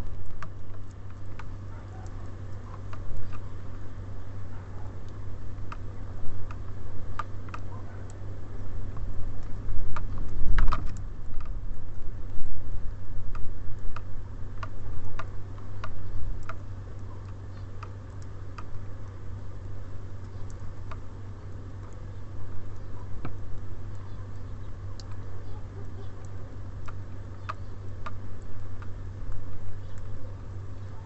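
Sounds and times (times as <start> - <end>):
steady low hum: 0.0 - 31.0
birds pecking at seed: 13.3 - 31.0.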